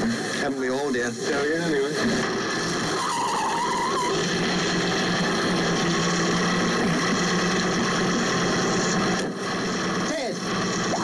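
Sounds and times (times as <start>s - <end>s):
sports car engine running: 1.6s - 11.0s.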